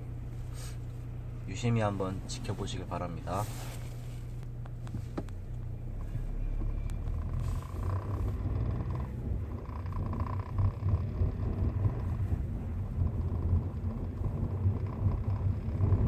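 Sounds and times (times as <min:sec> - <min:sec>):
engine and road rumble: 0:00.0 - 0:16.0
dashboard rattle clicks: 0:04.4 - 0:05.7.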